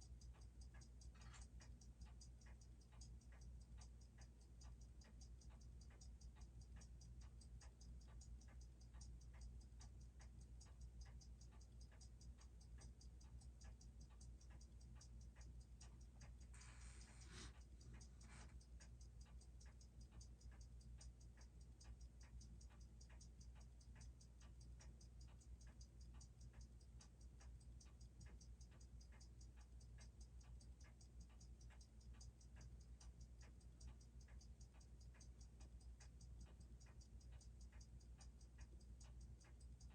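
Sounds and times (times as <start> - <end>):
watch ticking: 0.0 - 39.9
click: 0.1 - 39.9.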